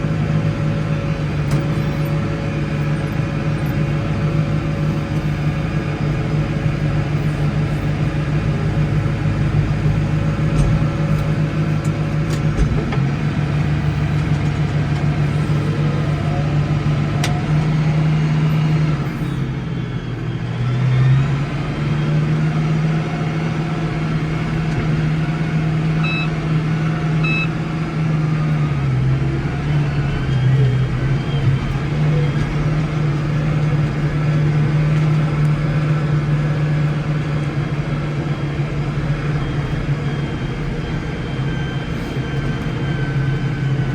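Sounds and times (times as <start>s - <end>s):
tractor engine running under load: 0.0s - 43.9s
short high beeps: 26.0s - 26.3s, 27.2s - 27.5s.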